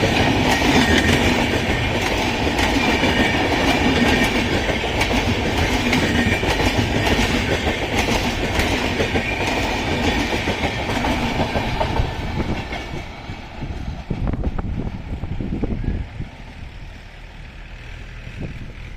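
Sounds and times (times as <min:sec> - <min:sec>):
train wheels clattering over rail joints: 0:00.0 - 0:14.4.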